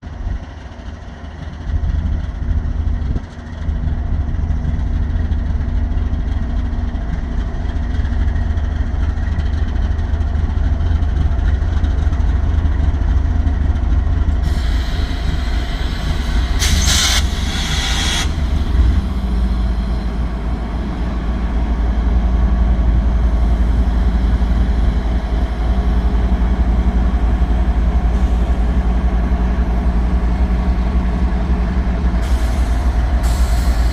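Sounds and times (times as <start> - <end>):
locomotive engine idling: 0.1 - 33.9
air hissing: 14.4 - 20.1, 32.2 - 33.9.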